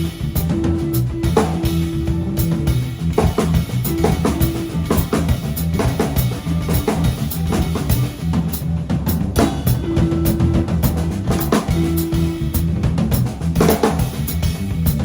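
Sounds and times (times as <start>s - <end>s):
bass line: 0.0s - 15.0s
drum kit kick and snare: 0.0s - 15.0s.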